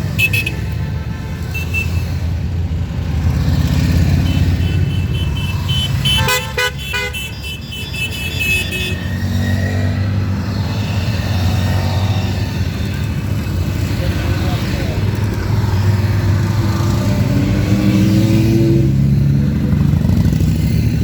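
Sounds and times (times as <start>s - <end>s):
vehicle horns honking: 0.0s - 2.2s, 4.0s - 9.2s
motorcycle engines running: 0.0s - 21.0s.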